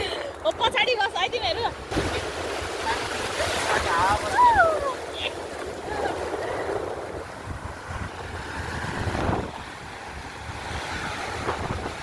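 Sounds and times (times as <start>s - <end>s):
sea surf washing: 0.0s - 12.0s
wind buffeting microphone: 0.0s - 12.0s.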